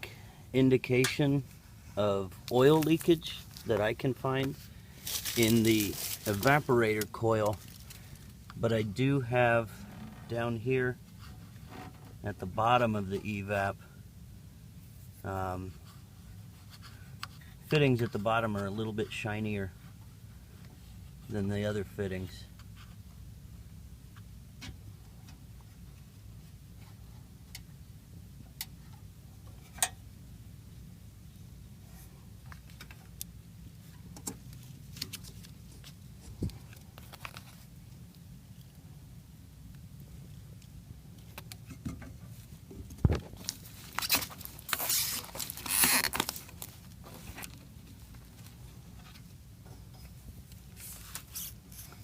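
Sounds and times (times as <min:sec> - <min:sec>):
steady low hum: 0:00.0 - 0:52.0
rustling and scraping: 0:01.4 - 0:08.4, 0:33.8 - 0:38.0, 0:41.2 - 0:52.0.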